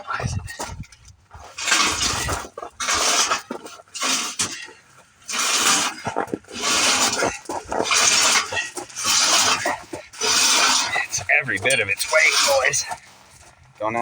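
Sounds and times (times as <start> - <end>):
man breathing hard and straining: 5.9 - 11.2.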